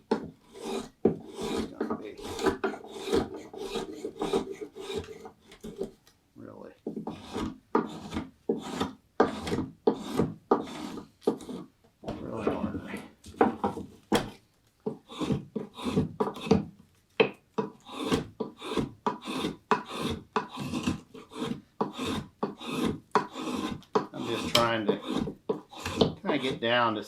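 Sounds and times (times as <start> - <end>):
spokeshave scraping wood: 0.1 - 6.0, 6.8 - 16.7, 17.6 - 27.0.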